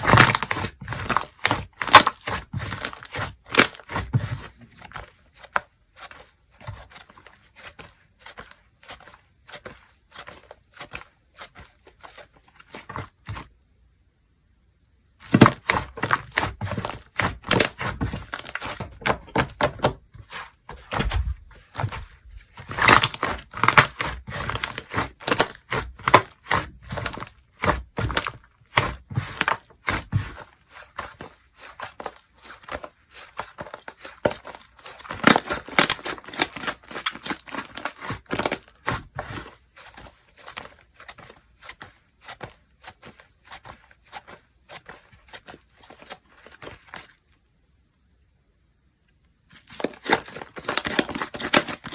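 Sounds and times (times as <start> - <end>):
slime squished by hand: 15.2 - 47.1.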